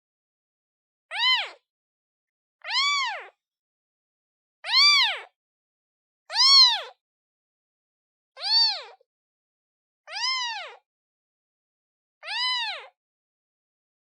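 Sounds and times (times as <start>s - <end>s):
kitten meowing: 1.1s - 1.6s, 2.6s - 3.4s, 4.6s - 5.3s, 6.3s - 7.0s, 8.4s - 9.0s, 10.1s - 10.8s, 12.2s - 13.0s.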